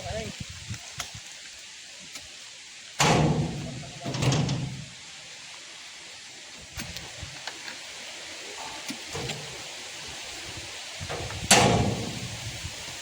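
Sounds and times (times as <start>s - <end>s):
steady hiss: 0.0s - 13.0s
heavy thuds with rumble: 3.0s - 5.0s, 11.0s - 12.6s.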